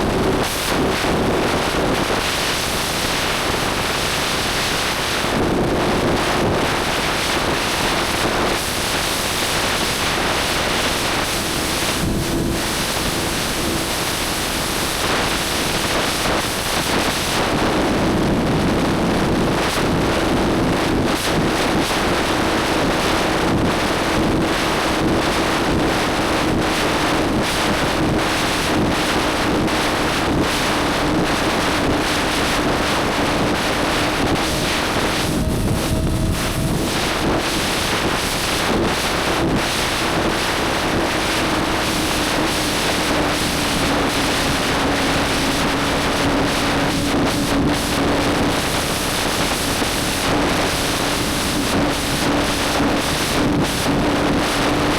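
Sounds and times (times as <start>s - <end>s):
wind buffeting microphone: 0.0s - 54.9s
motorcycle engine: 8.8s - 15.8s, 30.8s - 54.0s.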